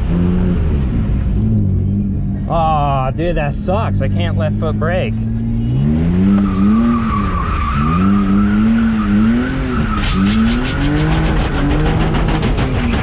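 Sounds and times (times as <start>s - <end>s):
car engine revving: 0.0s - 13.0s
tires squealing: 5.7s - 13.0s.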